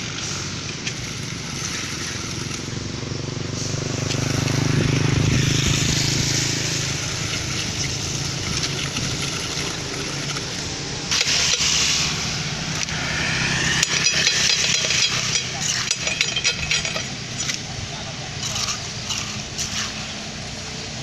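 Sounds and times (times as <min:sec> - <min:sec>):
brief rushing noise: 0:11.9 - 0:15.6.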